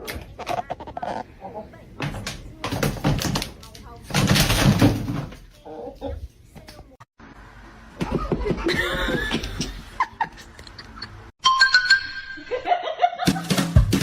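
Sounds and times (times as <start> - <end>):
music with laughter-like voices: 12.4 - 14.0.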